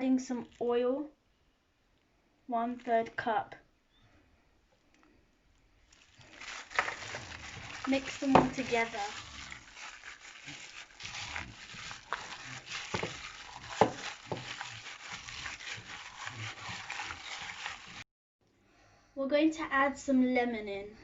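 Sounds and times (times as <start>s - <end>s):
wet sticky mixing of chicken: 5.9s - 18.0s.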